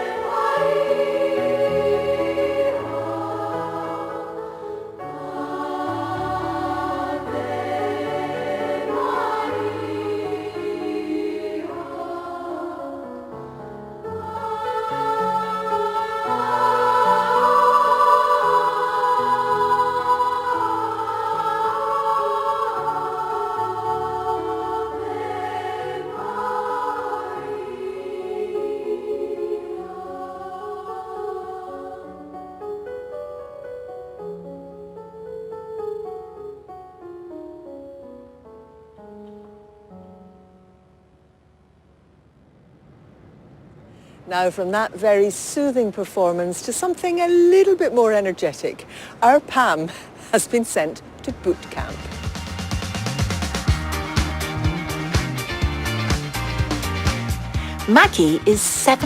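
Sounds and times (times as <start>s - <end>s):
choir singing in harmony: 0.0s - 33.0s.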